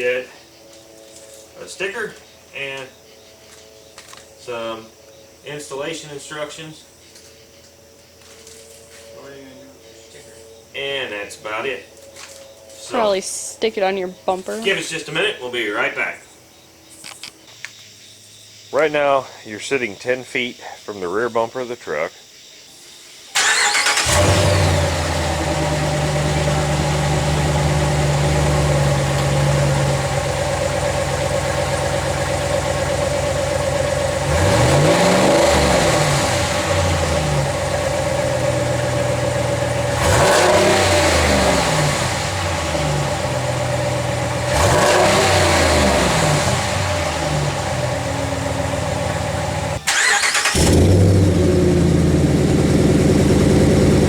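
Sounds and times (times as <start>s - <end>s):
truck engine idling and revving: 23.4s - 54.0s.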